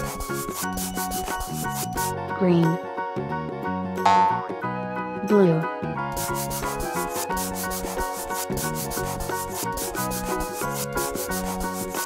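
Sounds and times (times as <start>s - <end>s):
scratchy coloring strokes: 0.0s - 2.1s, 6.2s - 12.0s
light background tune: 0.0s - 12.0s.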